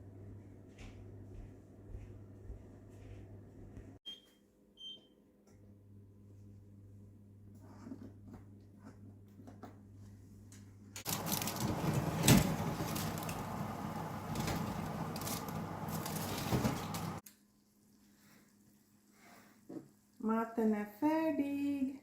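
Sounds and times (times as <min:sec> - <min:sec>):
faint steady hum with ticks: 0:00.1 - 0:04.0.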